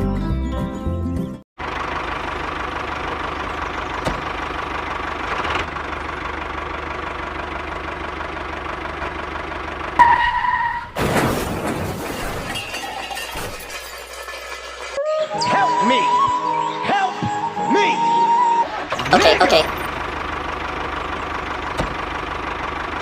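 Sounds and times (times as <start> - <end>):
engine-like running hum: 1.6 - 11.4, 17.7 - 23.0
loud crash: 10.9 - 15.0.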